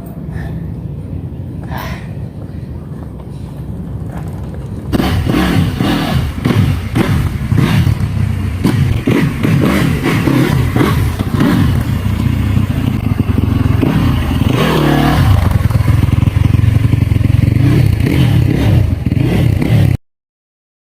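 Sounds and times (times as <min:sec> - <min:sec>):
dirt bike engine running: 0:04.1 - 0:20.0.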